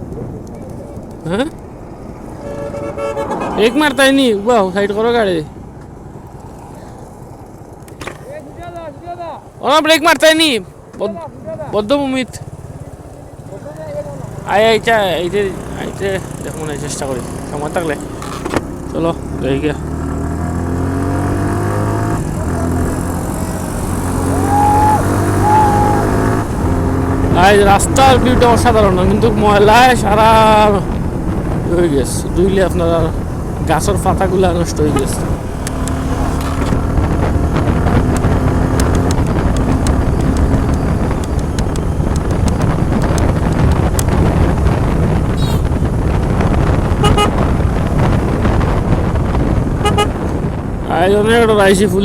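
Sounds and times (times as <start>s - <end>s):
wind on microphone: 20.2s - 51.8s
motorcycle engine running: 33.0s - 50.6s.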